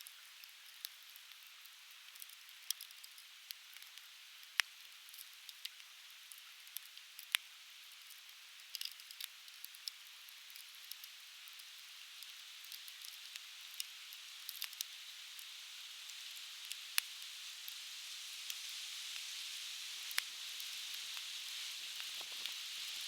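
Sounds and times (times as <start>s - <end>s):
bonfire crackling and popping: 20.1s - 23.0s.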